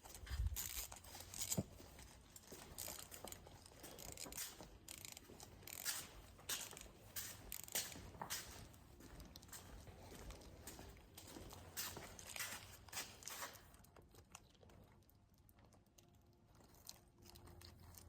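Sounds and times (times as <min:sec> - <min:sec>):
rustling and light knocks: 0:00.0 - 0:13.8.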